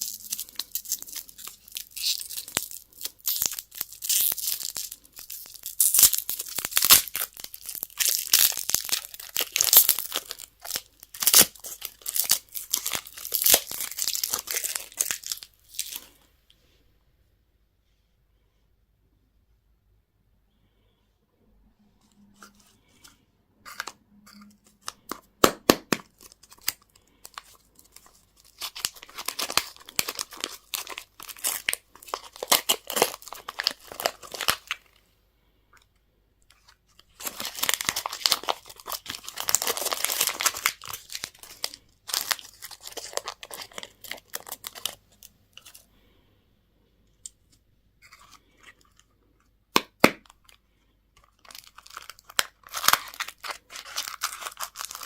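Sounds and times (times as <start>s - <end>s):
packaging torn and crinkled: 0.0s - 16.2s, 23.7s - 34.9s, 36.5s - 45.8s, 51.2s - 55.0s.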